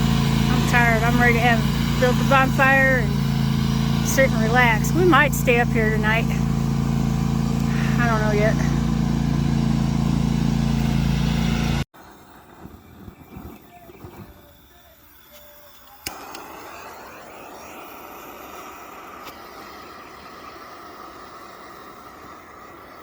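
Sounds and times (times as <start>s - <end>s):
riding lawn mower engine: 0.0s - 14.9s, 15.9s - 23.0s
sharp click: 15.3s - 16.5s.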